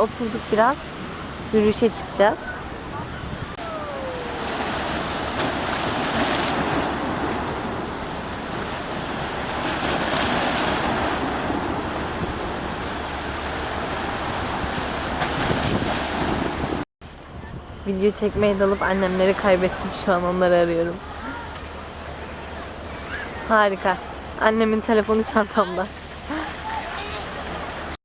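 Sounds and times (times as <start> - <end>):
sea waves washing onto shore: 0.0 - 16.8, 18.3 - 28.0
wind rumble on microphone: 0.0 - 18.9.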